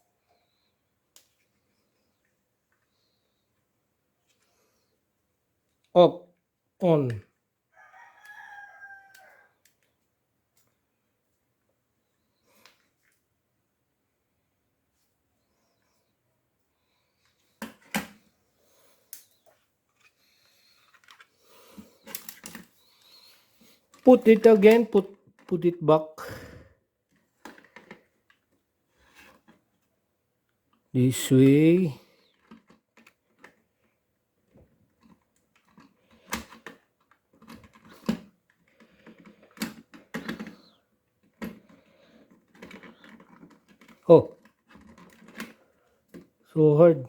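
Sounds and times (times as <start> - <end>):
plastic parts clicking and snapping: 20.9 - 22.8, 35.0 - 46.3.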